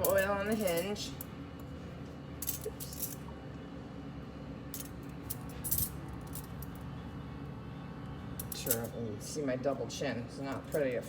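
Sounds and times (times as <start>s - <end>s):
small metal tools clinking: 0.0s - 1.2s, 2.4s - 3.2s, 4.8s - 6.8s, 8.4s - 9.0s.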